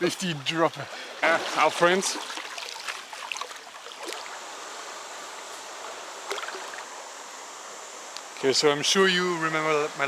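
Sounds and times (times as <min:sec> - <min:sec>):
stream rushing over rocks: 0:00.0 - 0:05.0.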